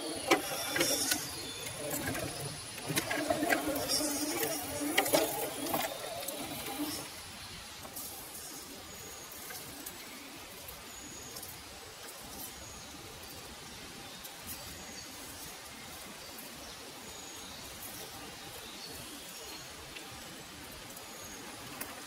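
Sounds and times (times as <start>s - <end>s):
small bird chirping: 0.0s - 11.7s
steady background hiss: 0.0s - 22.0s.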